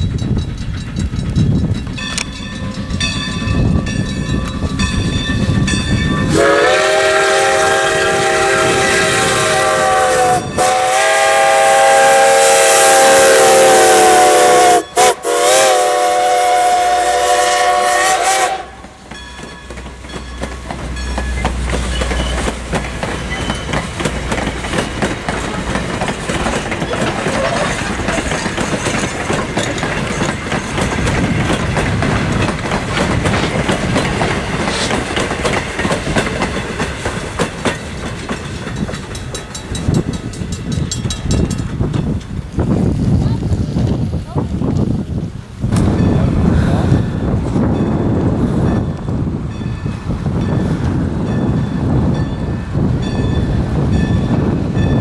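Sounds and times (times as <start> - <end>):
train rumbling on rails: 0.0 - 55.0
steam locomotive whistle blast: 6.2 - 19.0.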